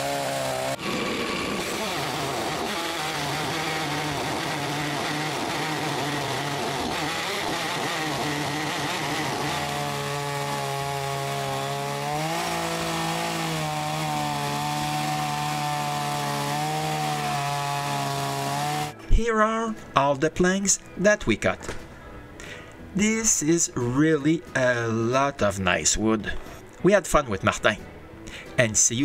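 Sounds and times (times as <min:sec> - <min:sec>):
chainsaw cutting log: 0:00.0 - 0:19.0.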